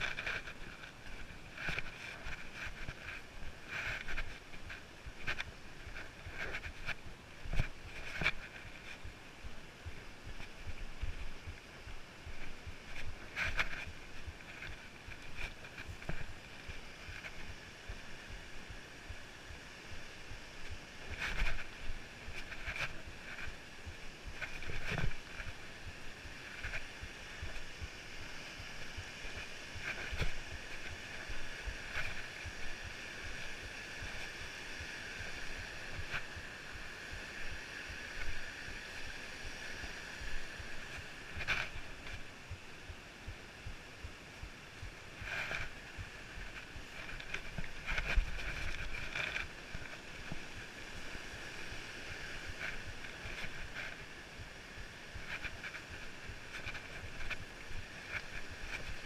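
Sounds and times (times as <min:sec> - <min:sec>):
footsteps on rocky trail: 0:00.0 - 0:59.0.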